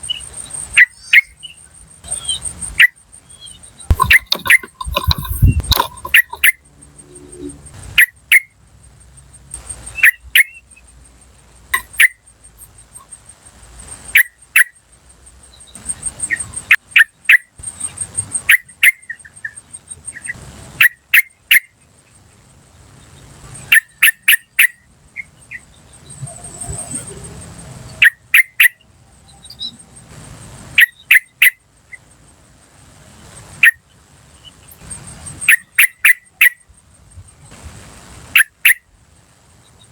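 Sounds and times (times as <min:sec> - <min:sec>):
bird giving sharp calls: 0:00.0 - 0:08.5, 0:09.6 - 0:10.6, 0:35.4 - 0:36.6, 0:38.4 - 0:38.8.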